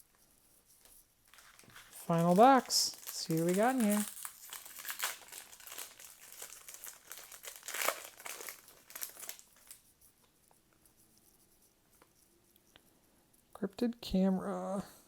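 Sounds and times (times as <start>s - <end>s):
plastic wrap crinkling and tearing: 1.3s - 9.8s.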